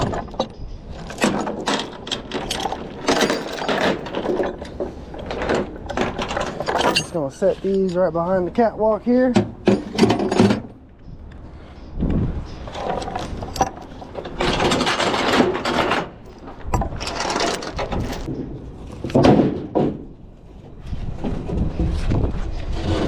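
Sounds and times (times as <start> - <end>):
gear rustling and knocking: 0.0 - 8.0, 12.6 - 20.0.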